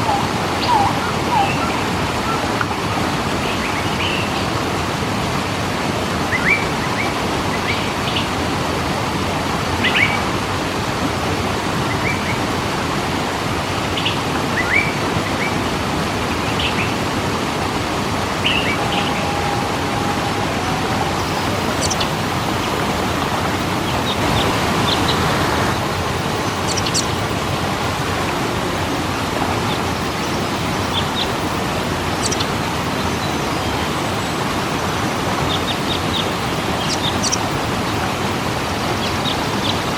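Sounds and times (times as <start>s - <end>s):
birds chirping: 0.0s - 2.7s, 18.2s - 39.9s
waterfall rushing: 0.0s - 39.9s.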